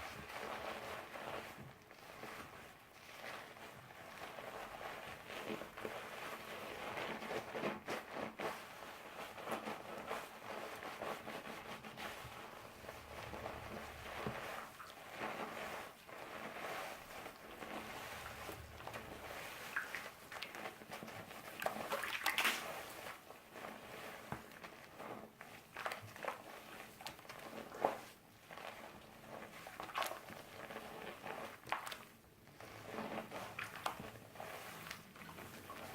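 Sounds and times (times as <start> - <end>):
water squishing and splashing: 12.8 - 24.8, 25.6 - 35.9.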